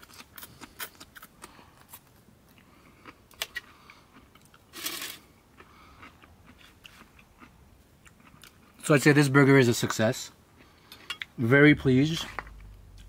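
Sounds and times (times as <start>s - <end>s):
person chewing and crunching: 0.0s - 8.8s, 12.2s - 13.0s.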